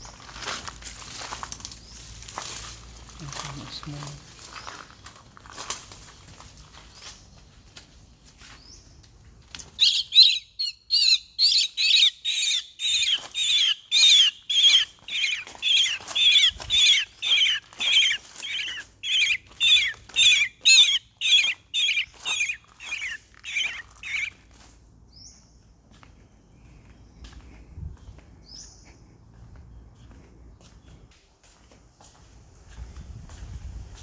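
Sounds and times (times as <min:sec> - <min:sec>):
young bird chirping: 0:09.6 - 0:24.4.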